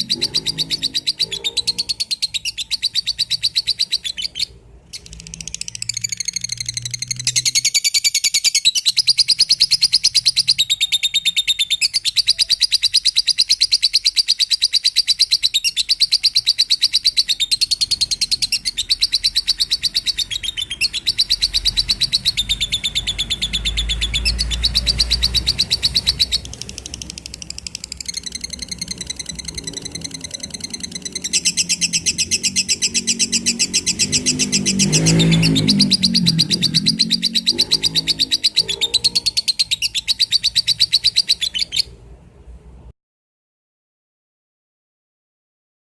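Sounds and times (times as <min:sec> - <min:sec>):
lovebird chattering trills: 0:00.0 - 0:42.0
lower rougher sound: 0:19.8 - 0:39.5.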